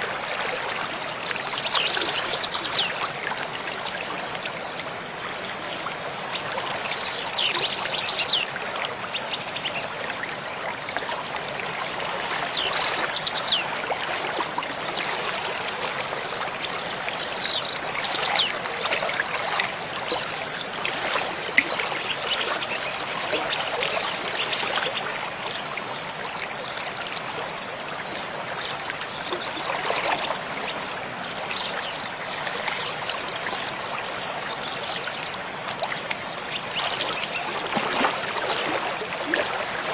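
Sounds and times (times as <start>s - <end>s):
mountain stream flowing: 0.0s - 39.9s
songbird singing: 6.6s - 8.5s, 12.0s - 13.7s, 16.5s - 18.6s, 30.6s - 33.0s.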